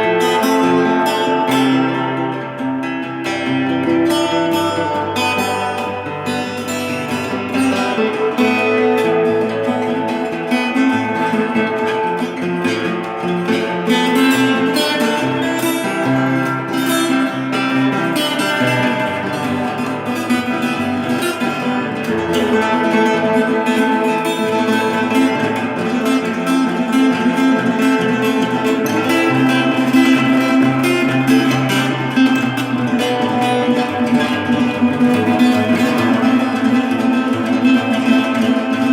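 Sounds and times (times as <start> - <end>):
acoustic guitar music: 0.0 - 38.9.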